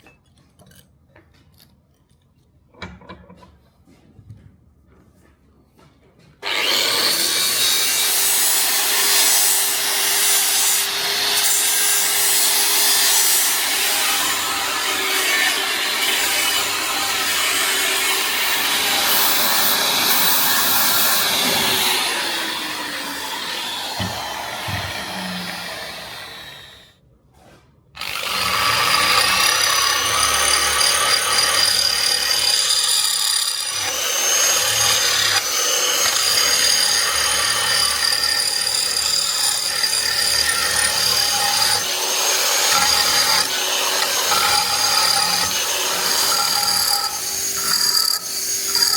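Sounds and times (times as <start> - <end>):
power tool rasping: 6.4 - 26.9, 28.0 - 48.9
power tool whine spinning up: 13.5 - 26.9, 39.0 - 48.9.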